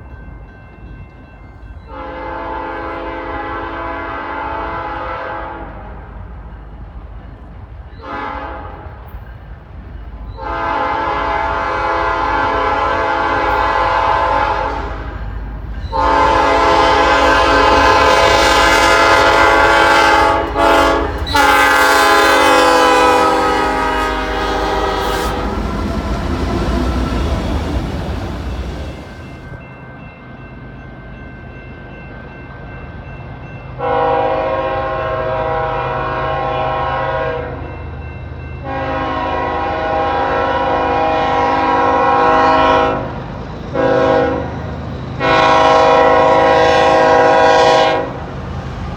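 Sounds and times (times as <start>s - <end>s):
train rumbling on rails: 0.0s - 48.9s
locomotive air horn blasts: 1.9s - 5.9s, 8.0s - 9.0s, 10.4s - 15.2s, 15.9s - 29.3s, 33.8s - 37.6s, 38.6s - 43.2s, 43.8s - 44.5s, 45.2s - 48.2s.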